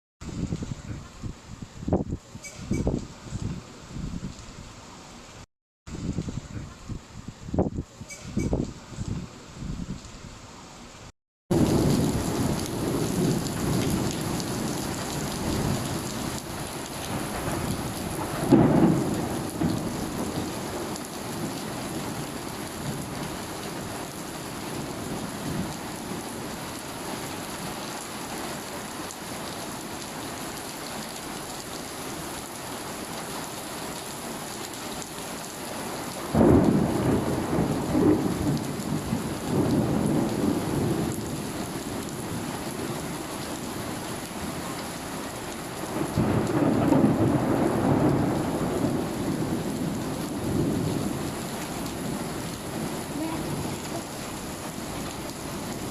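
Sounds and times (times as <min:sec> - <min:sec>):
steady rain: 0:00.2 - 0:55.9
rolling thunder: 0:11.5 - 0:26.4, 0:36.3 - 0:43.6, 0:45.8 - 0:55.9.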